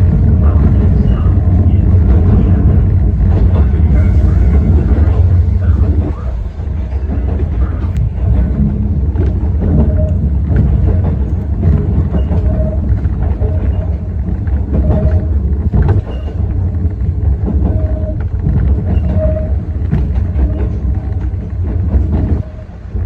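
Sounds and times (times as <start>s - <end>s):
electric railcar rumble: 0.0s - 23.0s.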